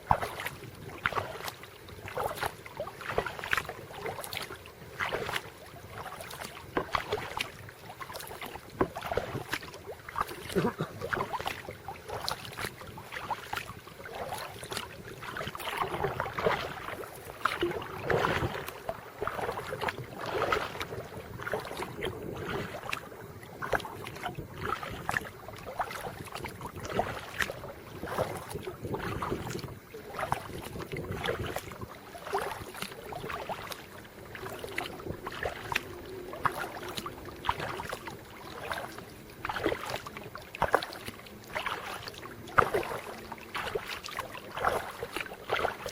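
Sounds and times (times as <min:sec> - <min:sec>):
paddle splashing in water: 0:00.0 - 0:45.9.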